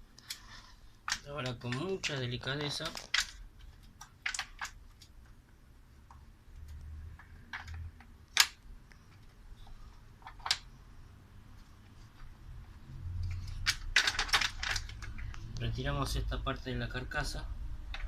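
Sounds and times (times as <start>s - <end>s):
light clicks and taps of plastic parts: 0.1s - 10.7s.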